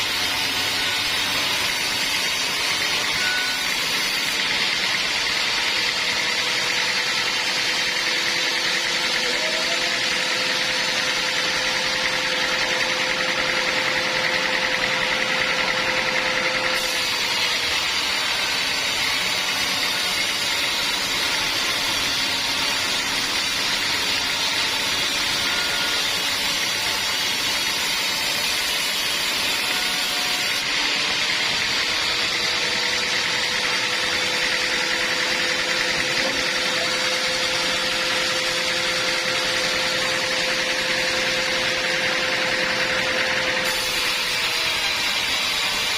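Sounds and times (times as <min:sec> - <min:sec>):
bandsaw machinery humming: 0:00.0 - 0:45.9.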